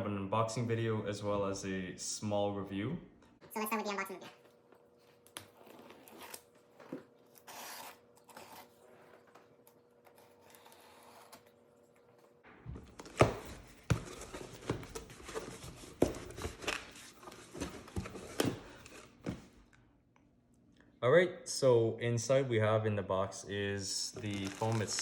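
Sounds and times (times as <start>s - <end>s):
cardboard tearing: 24.2s - 25.0s.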